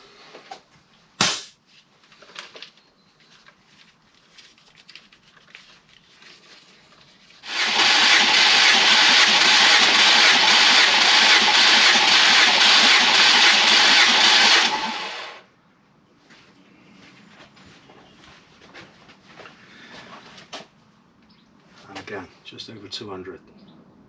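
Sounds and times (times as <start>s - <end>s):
starter motor cranking engine: 7.4s - 15.4s.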